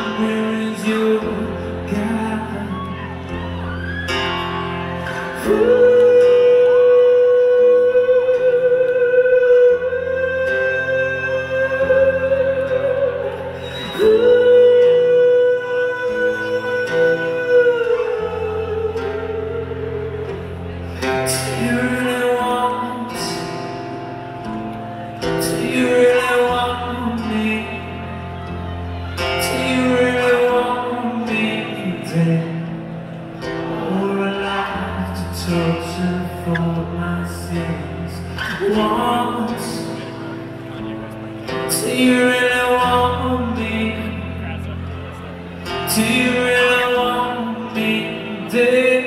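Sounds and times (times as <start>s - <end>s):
person singing: 0.0s - 44.9s, 45.6s - 49.0s
acoustic guitar chords: 0.0s - 49.0s.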